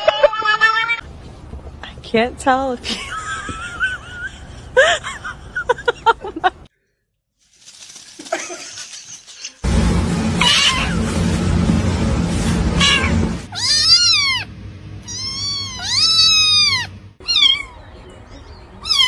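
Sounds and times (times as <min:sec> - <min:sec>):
loud steady rushing noise: 0:09.6 - 0:15.2
cat meowing: 0:12.8 - 0:17.8, 0:18.8 - 0:19.0.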